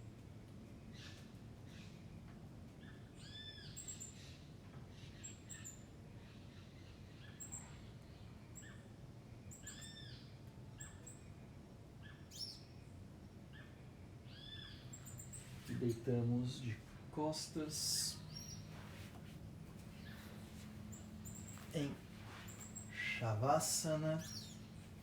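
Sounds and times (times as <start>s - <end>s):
low steady hum: 12.6s - 25.0s
arched bird call: 20.0s - 24.7s.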